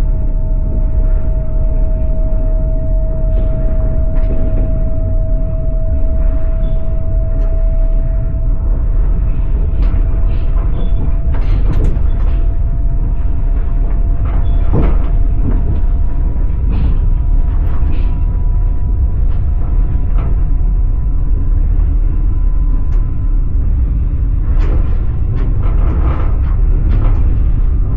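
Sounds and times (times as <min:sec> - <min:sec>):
faint thin whine: 0:00.0 - 0:15.2
train rumbling: 0:00.0 - 0:27.9.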